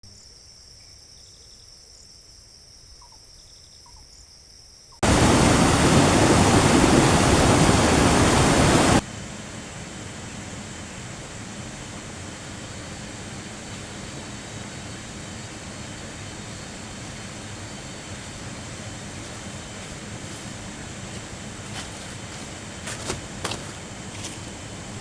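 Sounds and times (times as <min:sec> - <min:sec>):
loud rushing noise: 0:05.0 - 0:09.0
soft steady rush: 0:05.0 - 0:25.0.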